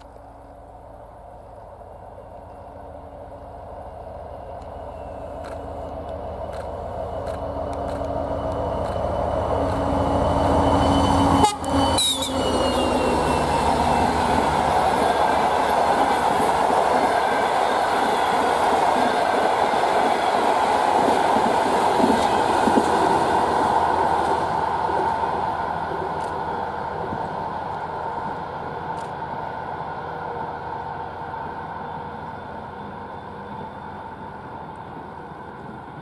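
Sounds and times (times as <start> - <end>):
diesel locomotive engine: 0.0 - 36.0
train wheels clattering on rails: 4.2 - 28.1.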